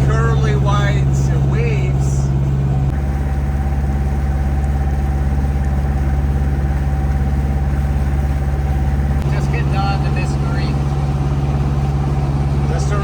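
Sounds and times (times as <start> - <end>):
boat motor humming: 0.0 - 13.0
faint steady whine: 0.0 - 13.0.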